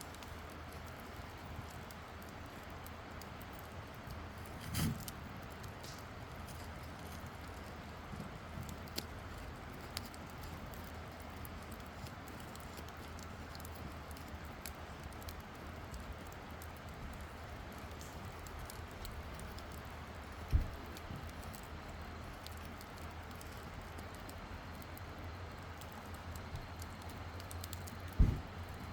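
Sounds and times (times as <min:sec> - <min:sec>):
campfire crackling: 0:00.0 - 0:28.9
dull thump: 0:28.2 - 0:28.6.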